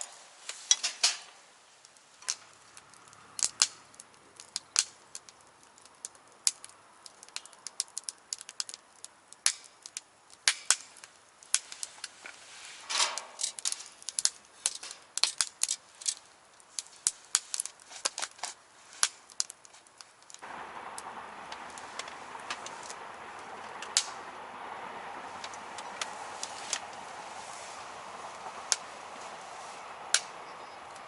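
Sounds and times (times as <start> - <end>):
firewood crackling and popping: 0.0 - 31.0
steady hiss: 0.0 - 31.0
hissing flare: 20.4 - 31.0.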